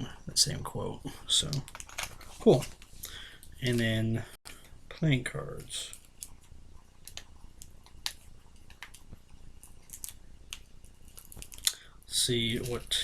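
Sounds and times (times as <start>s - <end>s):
playing cards and packaging handled: 1.4s - 3.9s, 5.6s - 13.0s.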